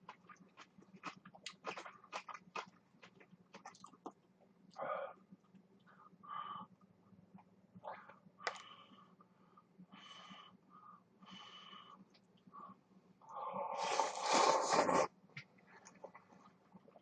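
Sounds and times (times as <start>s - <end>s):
slurping noodles: 13.4s - 15.1s.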